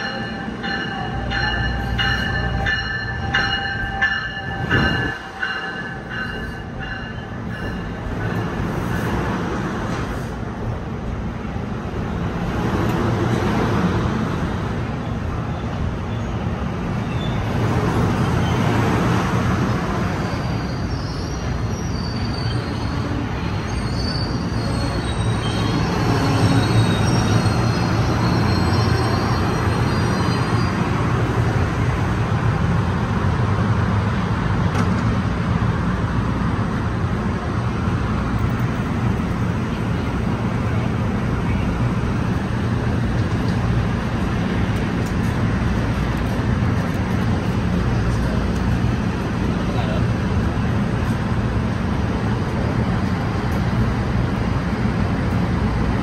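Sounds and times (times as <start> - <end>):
train wheels rumbling on rails: 0.0 - 56.0
high brake squeal: 17.0 - 17.5, 20.1 - 30.9.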